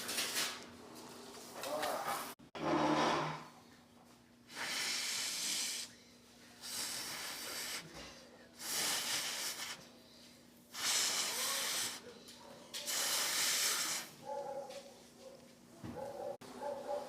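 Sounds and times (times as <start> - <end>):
hissing bursts: 4.5 - 5.9, 6.6 - 7.9, 8.6 - 9.9, 10.7 - 12.1, 12.8 - 14.2.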